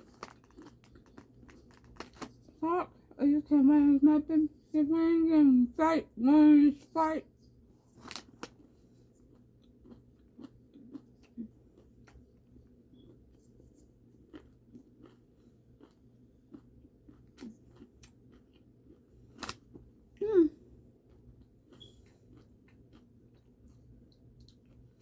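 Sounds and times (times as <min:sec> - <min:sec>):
person chewing crunchy food: 0:00.0 - 0:02.6, 0:07.9 - 0:20.0, 0:20.7 - 0:25.0.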